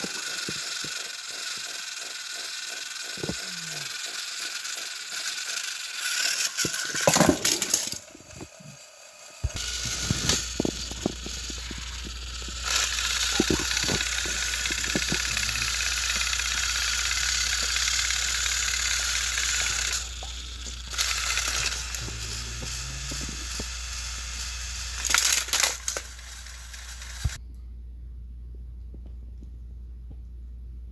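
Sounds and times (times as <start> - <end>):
toy train motors whirring: 0.0 - 27.4
plastic clicking and rattling: 9.5 - 22.0, 25.0 - 27.4.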